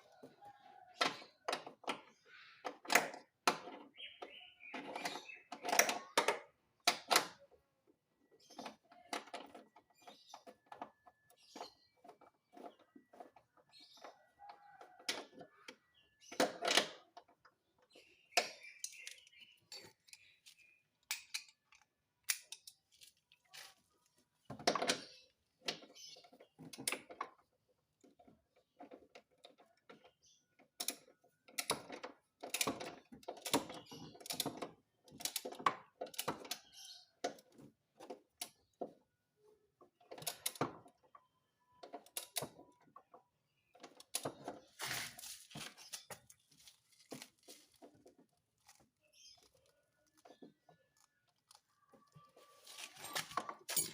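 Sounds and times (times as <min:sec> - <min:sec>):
hand tools knocking and rattling: 0:52.8 - 0:53.9.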